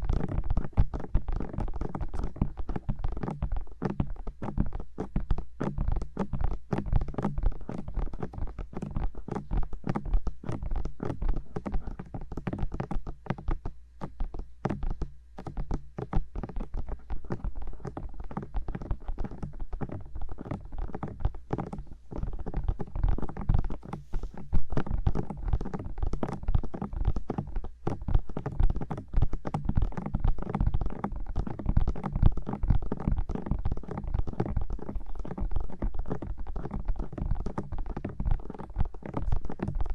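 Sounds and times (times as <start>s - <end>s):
fingertips tapping on microphone: 0.0s - 39.9s.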